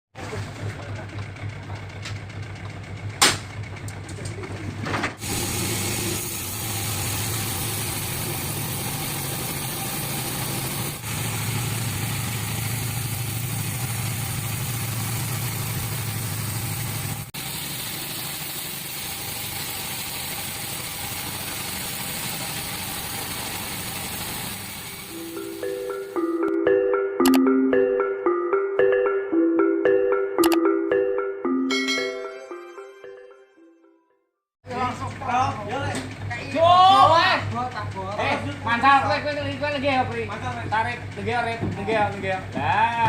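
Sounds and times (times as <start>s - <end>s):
machinery engine humming: 0.2s - 4.8s, 5.4s - 30.0s.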